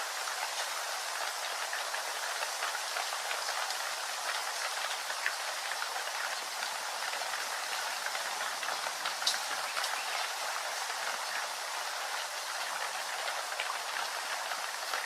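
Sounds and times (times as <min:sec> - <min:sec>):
steady rain: 0:00.0 - 0:15.0
sharp water drip: 0:08.0 - 0:11.4.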